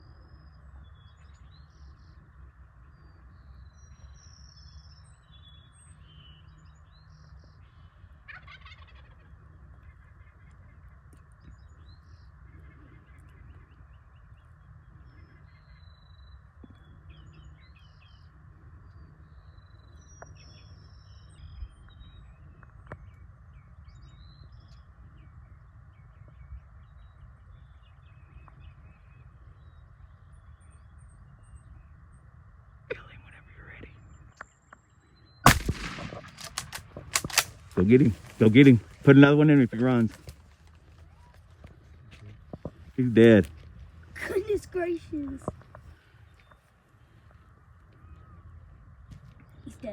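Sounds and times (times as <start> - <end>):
faint low rumble: 0.0 - 49.9
songbirds chirping: 0.0 - 49.9
turkey gobbling: 8.3 - 9.3.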